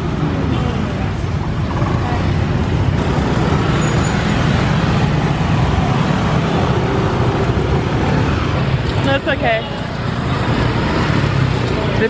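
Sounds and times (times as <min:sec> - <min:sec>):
scooter and car engines running: 0:00.0 - 0:12.0
street traffic noise: 0:00.0 - 0:12.0.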